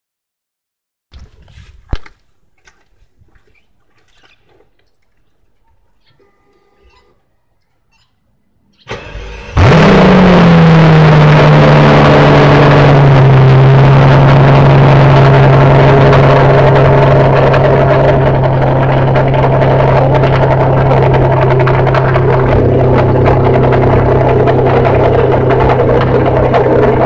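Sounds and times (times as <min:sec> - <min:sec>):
car engine cranking: 0:08.8 - 0:27.0
car engine idling: 0:08.9 - 0:27.0.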